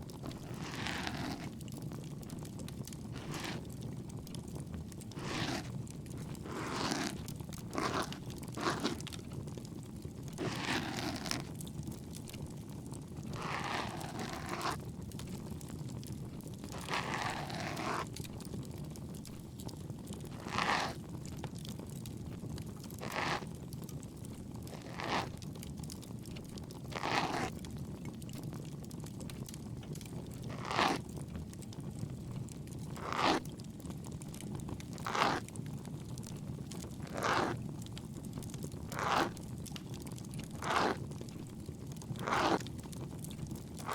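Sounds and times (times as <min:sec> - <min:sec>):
ear pick scraping in ear: 0:00.2 - 0:01.6, 0:03.2 - 0:03.7, 0:05.1 - 0:09.1, 0:10.3 - 0:11.5, 0:13.3 - 0:14.8, 0:16.7 - 0:18.1, 0:20.3 - 0:21.0, 0:23.0 - 0:23.5, 0:24.7 - 0:25.4, 0:26.9 - 0:27.5, 0:30.5 - 0:31.0, 0:33.0 - 0:33.4, 0:35.0 - 0:35.4, 0:37.0 - 0:37.6, 0:39.0 - 0:39.4, 0:40.6 - 0:41.0, 0:42.2 - 0:42.7
campfire crackling: 0:39.5 - 0:43.9.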